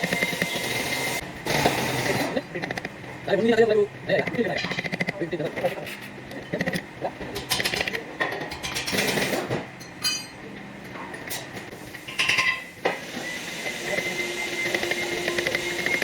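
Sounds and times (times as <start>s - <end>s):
metal tools clinking and knocking: 9.8s - 10.4s
steady whine: 11.9s - 16.0s.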